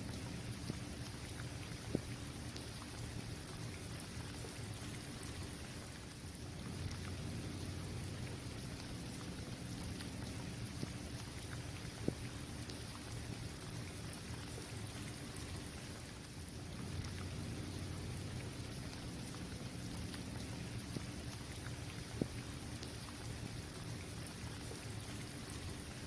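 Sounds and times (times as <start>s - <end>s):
rain falling on a court: 0.0s - 26.0s
ticks of single raindrops: 6.0s - 25.9s
low steady rumble: 6.3s - 15.8s, 16.5s - 25.6s.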